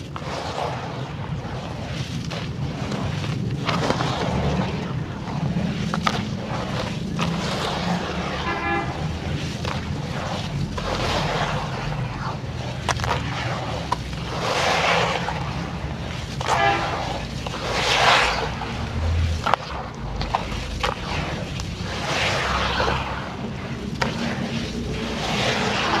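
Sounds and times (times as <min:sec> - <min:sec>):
low traffic hum: 0:00.0 - 0:26.0
car horn toot: 0:08.4 - 0:09.0, 0:16.5 - 0:17.1
charcoal crunching and snapping: 0:09.3 - 0:14.4.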